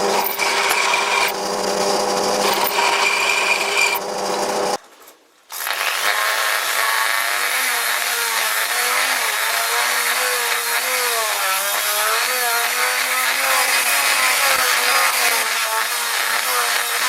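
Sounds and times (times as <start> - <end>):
metalworking machine motor hum: 0.0 - 4.8.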